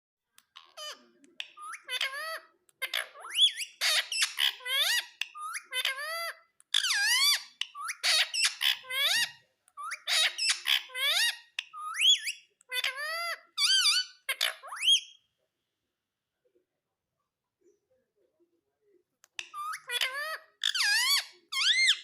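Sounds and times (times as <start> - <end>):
parrot squawking and chirping: 0.4 - 15.3, 19.3 - 22.0.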